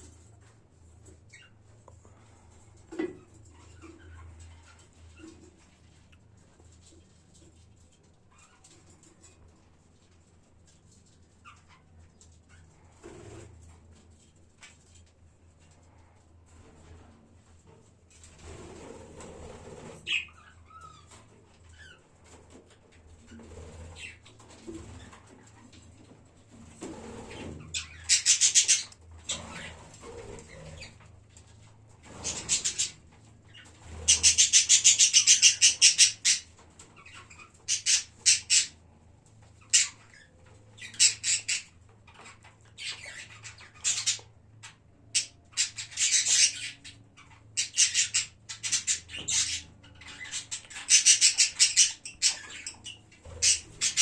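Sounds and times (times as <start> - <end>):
budgerigars chirping and chattering: 1.3 - 1.6, 19.2 - 25.7, 27.1 - 31.0, 32.1 - 38.8, 39.4 - 54.0.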